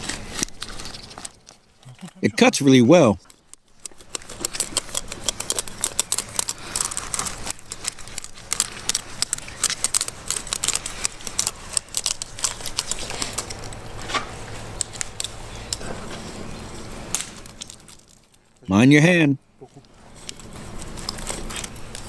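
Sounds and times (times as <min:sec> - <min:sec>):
knife cutting scaly skin: 0:03.2 - 0:15.8.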